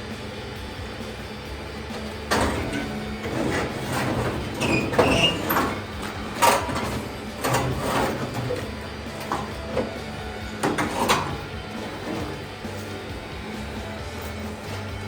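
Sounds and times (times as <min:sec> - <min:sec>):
parts clattering and scraping: 0:01.6 - 0:15.0
short squeaks: 0:02.0 - 0:12.9.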